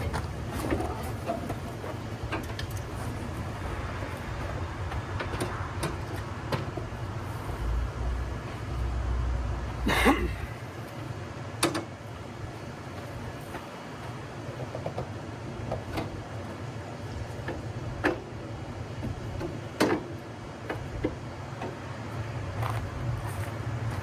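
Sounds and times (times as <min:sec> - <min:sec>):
heavy equipment clunks and knocks: 0:00.0 - 0:07.3, 0:11.6 - 0:12.0, 0:19.0 - 0:21.8.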